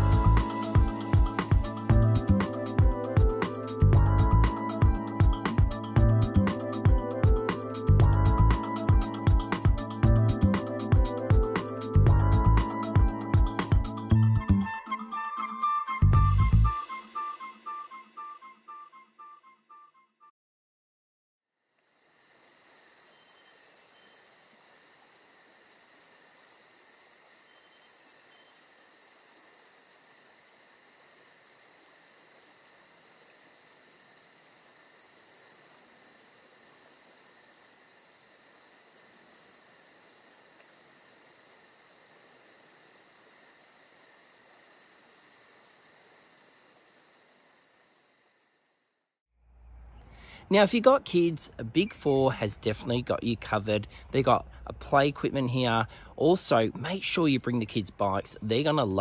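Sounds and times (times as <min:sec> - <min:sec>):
crickets chirring: 0:21.7 - 0:49.0.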